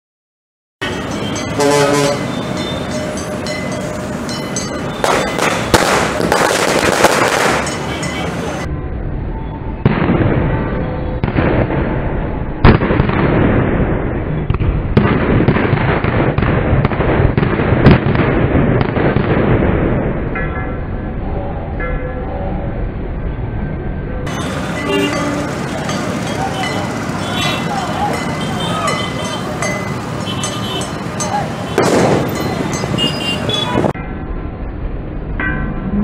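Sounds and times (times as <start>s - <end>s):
firecrackers bursting: 5.0s - 8.3s, 9.8s - 20.3s, 24.3s - 33.8s.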